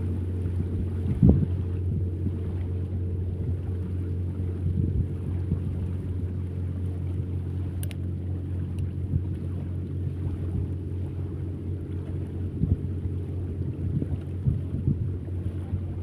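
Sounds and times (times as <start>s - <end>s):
engine droning: 0.0s - 16.0s
sharp click: 7.8s - 8.0s.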